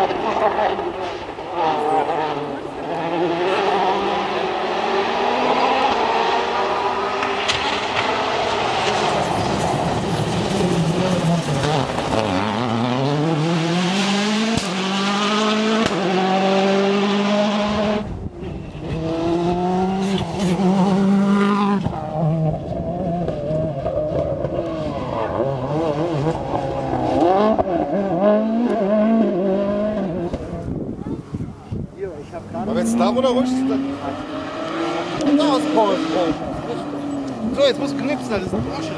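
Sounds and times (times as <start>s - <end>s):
rally car engines accelerating: 0.0s - 31.0s, 32.2s - 38.9s.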